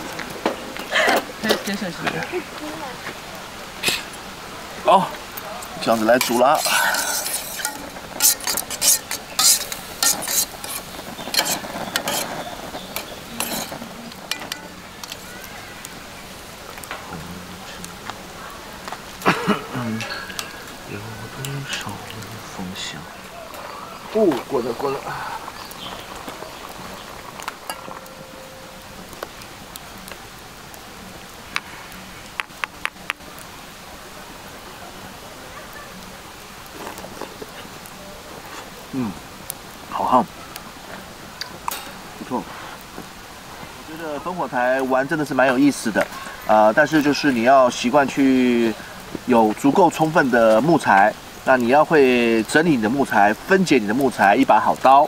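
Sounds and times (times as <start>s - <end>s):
wood fire: 0.0s - 55.0s
soup boiling in a pot: 4.8s - 33.6s, 36.0s - 55.0s
metal spoon scraping a pot: 6.1s - 15.3s.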